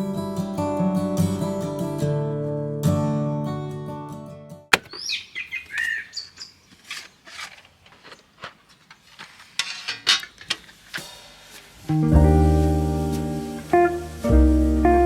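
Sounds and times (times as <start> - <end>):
small birds chirping: 4.8 - 7.2
soft clicks and rustles: 6.7 - 11.7.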